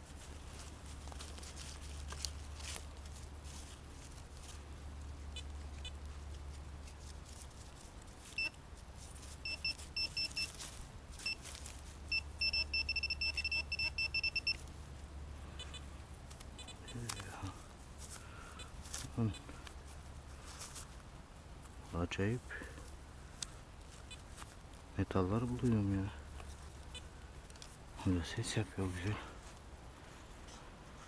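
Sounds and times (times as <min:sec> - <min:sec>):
rustling and scraping: 0:00.0 - 0:13.2, 0:14.4 - 0:31.0
metal detector high beeps: 0:09.4 - 0:10.5, 0:12.1 - 0:14.6.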